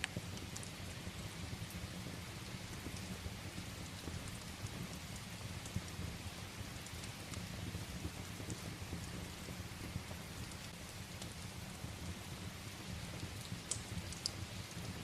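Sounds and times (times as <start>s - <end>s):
faint ticks and crackles: 0.0s - 15.0s
steady rain falling: 0.0s - 15.0s.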